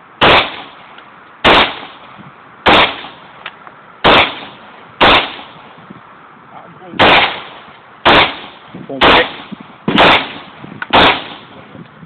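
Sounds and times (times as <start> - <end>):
gunshots with echo: 0.2 - 0.8, 1.4 - 2.0, 2.7 - 3.2, 4.0 - 5.6, 7.0 - 11.5.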